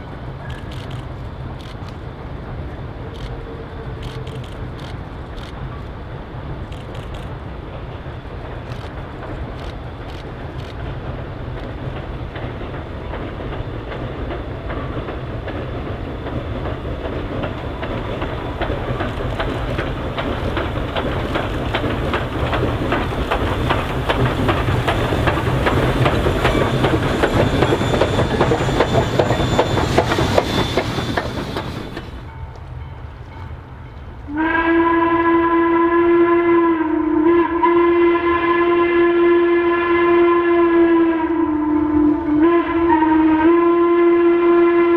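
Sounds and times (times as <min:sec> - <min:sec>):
train wheels clattering: 0:00.0 - 0:34.3
locomotive horn blast: 0:34.3 - 0:44.9.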